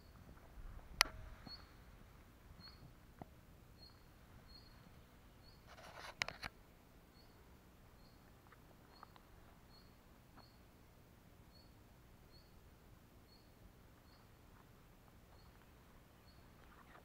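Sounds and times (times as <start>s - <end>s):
rustling: 5.6s - 6.6s, 13.9s - 17.0s.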